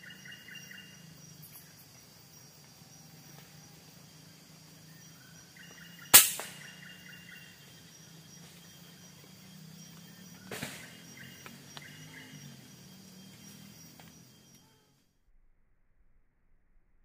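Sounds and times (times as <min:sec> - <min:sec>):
bird chirping: 0:00.0 - 0:14.9
forest insects droning: 0:00.0 - 0:15.2
air rifle shot: 0:06.1 - 0:06.9, 0:10.5 - 0:11.0.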